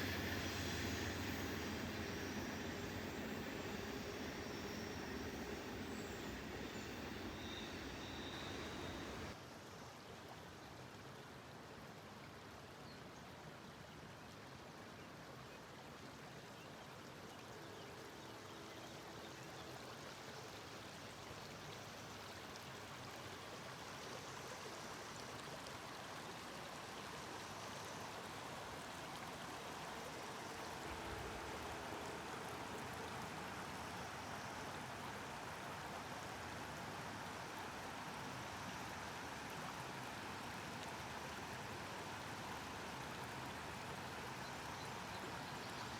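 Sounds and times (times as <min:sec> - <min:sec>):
faint low hum: 0:00.0 - 0:09.3
steady rushing noise: 0:00.0 - 0:09.3.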